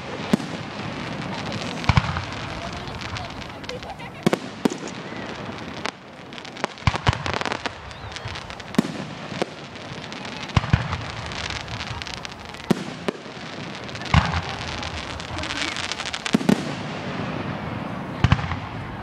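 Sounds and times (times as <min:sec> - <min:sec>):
firework bangs: 0:00.0 - 0:19.0.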